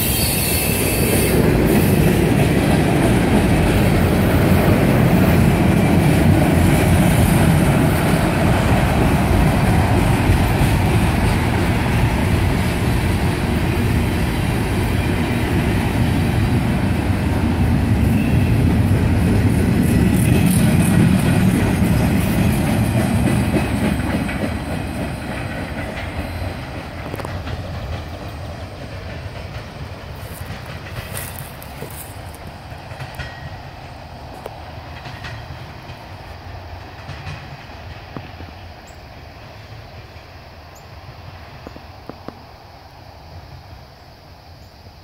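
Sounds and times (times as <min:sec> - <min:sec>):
freight train wheels rumbling on rails: 0:00.0 - 0:45.0.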